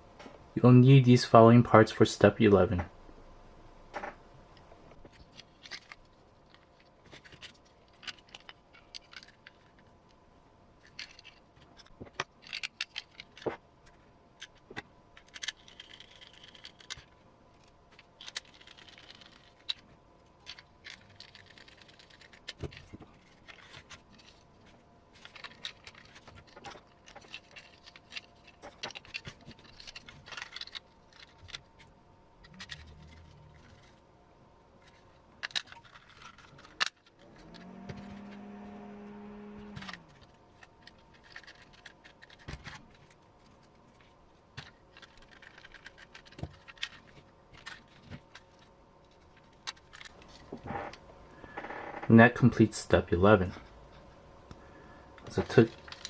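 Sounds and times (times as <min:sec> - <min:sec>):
plastic parts clicking and scraping: 0:04.0 - 0:10.2, 0:10.8 - 0:34.1, 0:34.8 - 0:51.8, 0:54.4 - 0:56.0.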